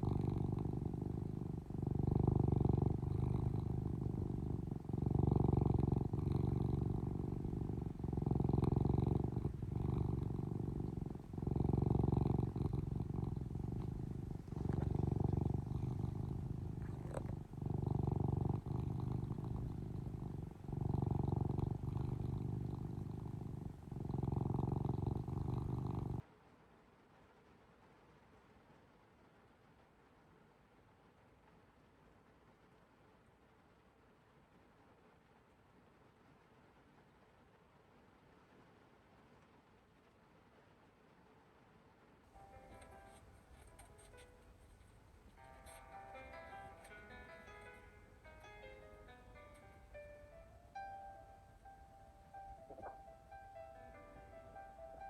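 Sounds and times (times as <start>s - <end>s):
cat purring: 0.0s - 26.3s, 42.3s - 55.0s.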